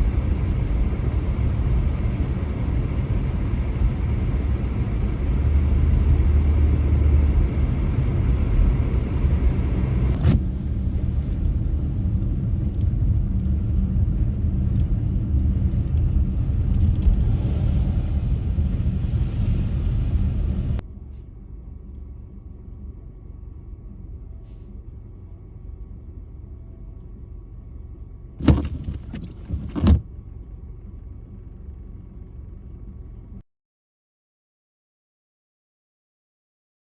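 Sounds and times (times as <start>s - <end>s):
car engine and road noise: 0.0s - 33.4s
quiet steady hum: 10.4s - 33.4s.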